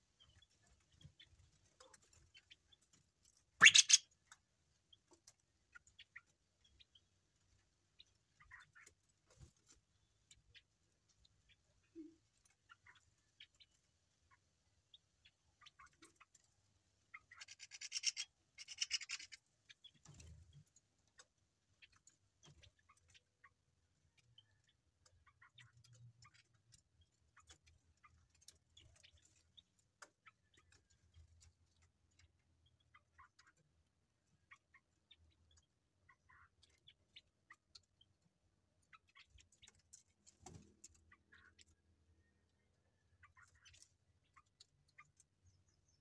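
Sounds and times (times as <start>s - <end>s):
birds pecking at feed: 0.0s - 46.0s.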